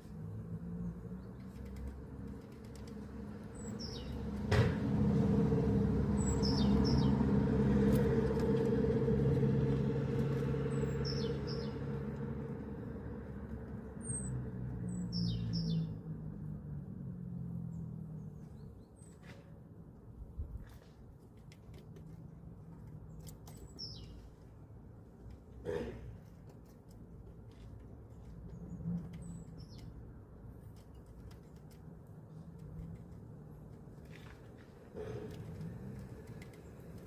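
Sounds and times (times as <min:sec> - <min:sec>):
motor vehicle rumble: 0:00.0 - 0:37.0
small birds chirping: 0:00.6 - 0:04.4, 0:06.1 - 0:08.6, 0:10.2 - 0:16.6, 0:17.4 - 0:19.4, 0:22.0 - 0:24.7, 0:27.6 - 0:34.4.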